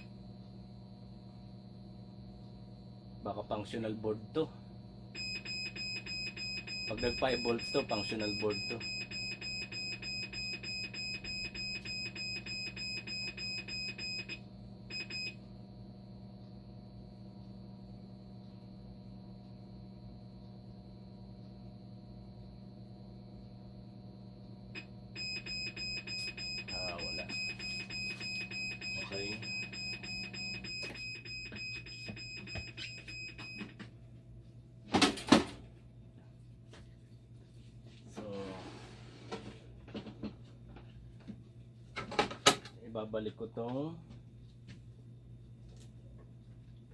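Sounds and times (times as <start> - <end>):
low machine hum: 0.0 - 46.9
electronic alarm beeping: 5.1 - 15.4, 24.8 - 33.8.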